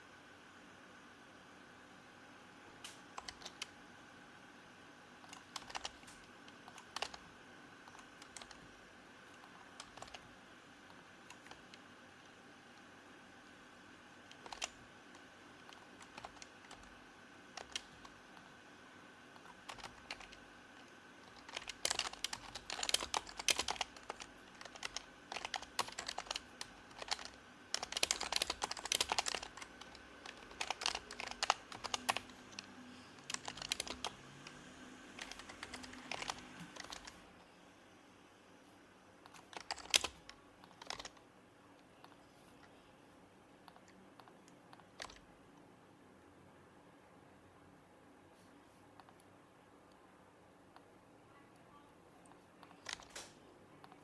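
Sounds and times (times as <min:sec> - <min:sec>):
soft keyboard typing: 0:02.8 - 0:03.8, 0:05.2 - 0:18.6, 0:19.2 - 0:37.2, 0:39.2 - 0:42.8, 0:43.6 - 0:45.6, 0:48.9 - 0:50.0, 0:50.7 - 0:54.0.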